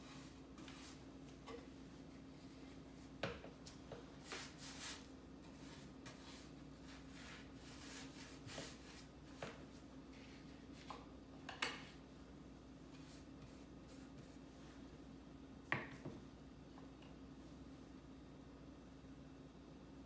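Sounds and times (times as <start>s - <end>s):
rubbing or scraping sounds: 4.2s - 9.4s.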